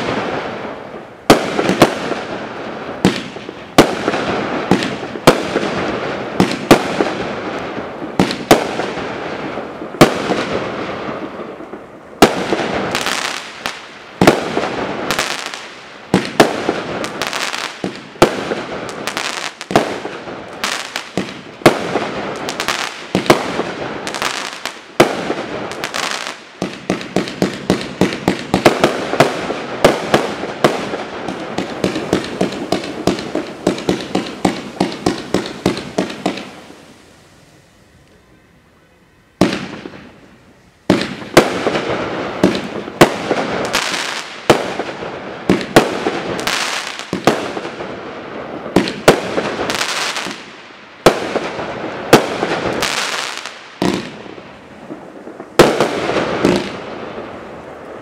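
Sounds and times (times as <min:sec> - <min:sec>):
firework crackle: 0:00.0 - 0:58.0
firework shells banging: 0:20.5 - 0:36.8.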